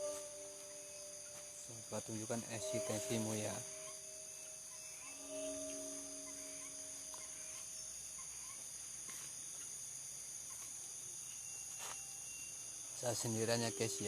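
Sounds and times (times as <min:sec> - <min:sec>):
faint low humming tone: 0:00.0 - 0:08.0
crickets and night insects chirping: 0:00.0 - 0:14.0.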